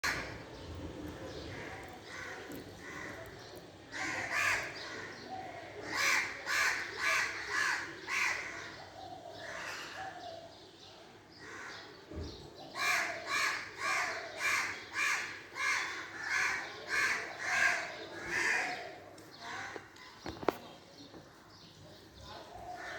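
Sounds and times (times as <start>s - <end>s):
crows cawing: 0.0s - 0.4s, 1.5s - 8.8s, 12.8s - 19.9s, 22.7s - 22.9s.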